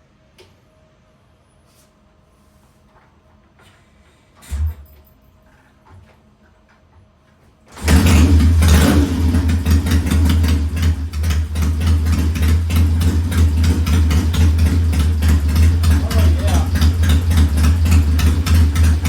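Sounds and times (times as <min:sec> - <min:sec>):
motorcycle engine running: 0:07.7 - 0:19.0.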